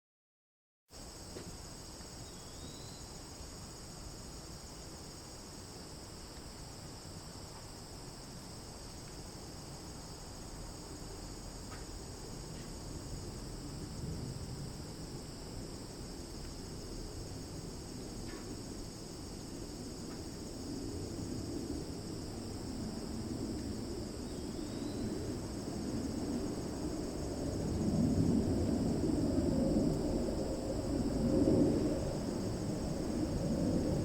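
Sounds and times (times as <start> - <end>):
crickets trilling: 1.0 - 34.0
low background rumble: 13.0 - 34.0.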